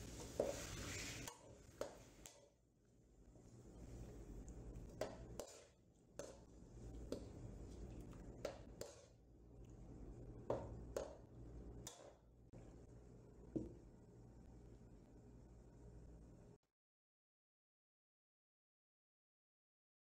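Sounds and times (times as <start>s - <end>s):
metal spoon scraping a pan: 0.0s - 2.1s, 5.0s - 6.5s, 8.5s - 9.2s.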